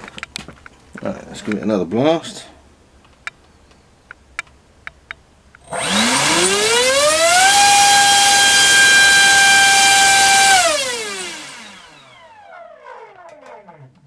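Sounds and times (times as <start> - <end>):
electric motor propeller whine: 5.6 - 13.8.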